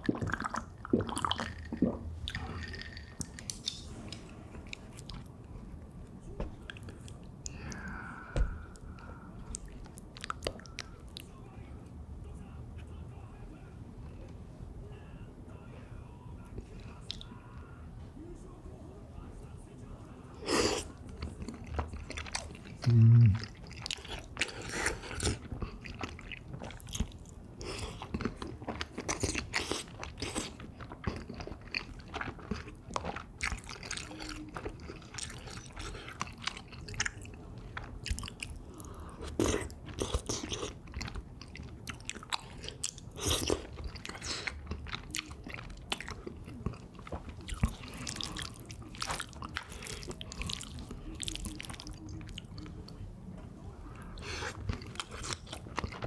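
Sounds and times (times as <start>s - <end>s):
wet chewing: 20.8s - 53.0s, 54.0s - 56.0s.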